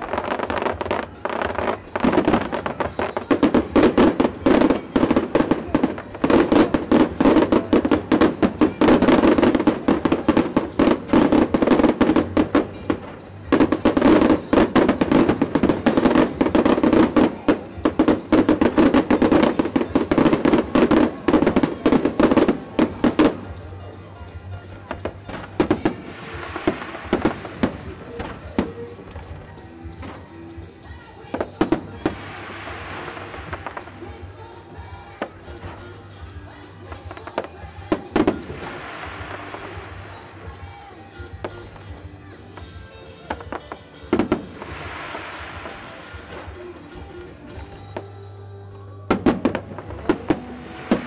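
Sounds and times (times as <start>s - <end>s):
fireworks crackling and popping: 0.0s - 51.0s.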